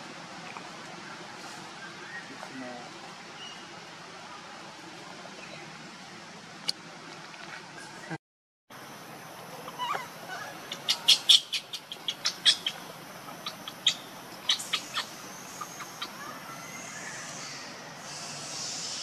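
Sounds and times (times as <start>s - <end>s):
bird chirping: 9.6s - 19.0s.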